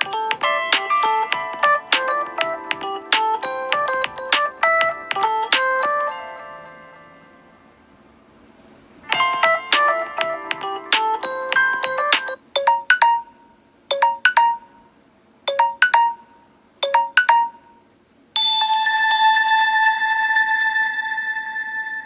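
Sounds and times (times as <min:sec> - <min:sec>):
phone ringtone melody: 0:00.0 - 0:07.2, 0:09.1 - 0:14.8, 0:15.5 - 0:17.8, 0:18.4 - 0:22.0
sustained chime ringtone: 0:18.4 - 0:22.0
three-note chime: 0:18.4 - 0:22.0.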